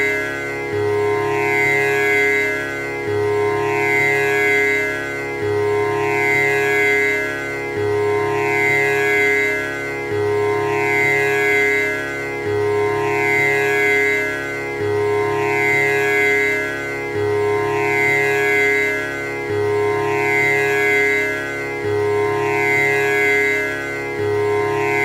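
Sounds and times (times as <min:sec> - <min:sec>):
tanpura drone: 0:00.0 - 0:25.0.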